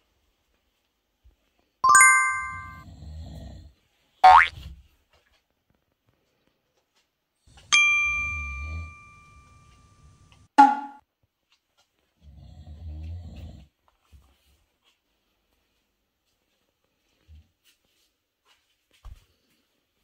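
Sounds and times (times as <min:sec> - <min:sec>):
bell-like ding: 0:01.8 - 0:02.8, 0:07.7 - 0:11.0.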